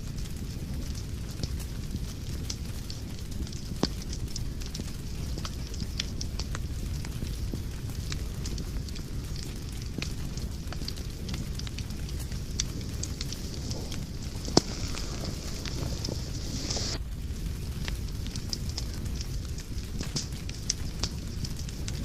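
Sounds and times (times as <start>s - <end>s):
fire crackling: 0.0s - 22.0s
low rumble of flames: 0.0s - 22.0s
loud pop of fire: 5.4s - 22.0s.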